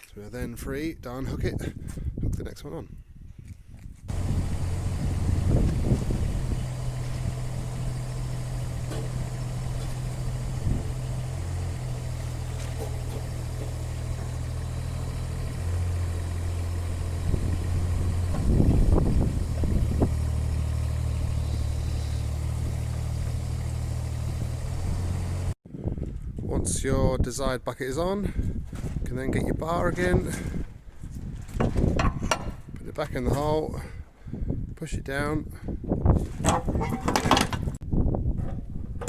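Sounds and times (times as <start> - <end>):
excavator diesel engine running: 4.1 - 25.6.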